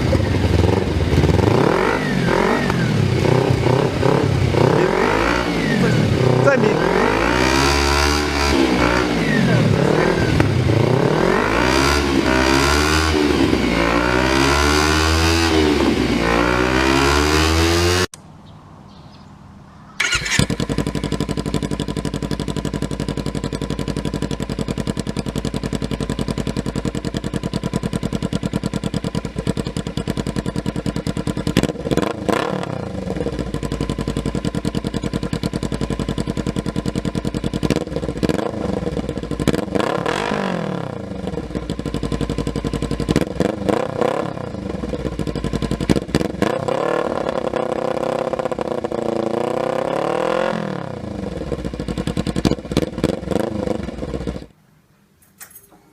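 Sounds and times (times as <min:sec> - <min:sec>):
motorcycle engine idling: 0:00.0 - 0:07.5, 0:08.6 - 0:11.4, 0:19.9 - 0:49.8, 0:50.9 - 0:54.6
motorcycle engine revving: 0:00.0 - 0:18.2, 0:20.0 - 0:54.6.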